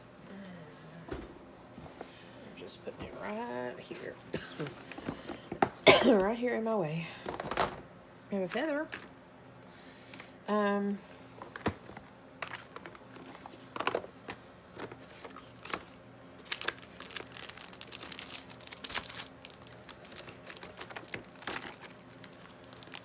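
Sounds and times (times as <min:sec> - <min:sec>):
packaging crinkling: 0:11.4 - 0:23.0.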